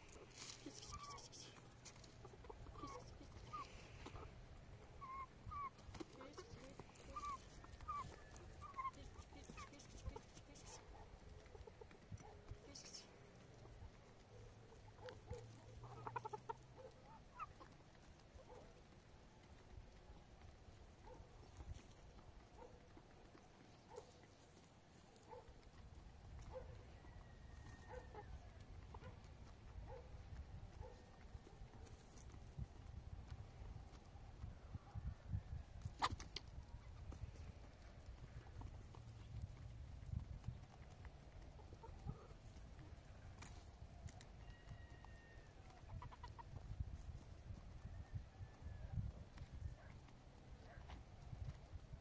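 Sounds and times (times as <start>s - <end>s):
wind rumble on microphone: 32.4s - 37.6s, 39.2s - 40.6s, 45.9s - 50.0s.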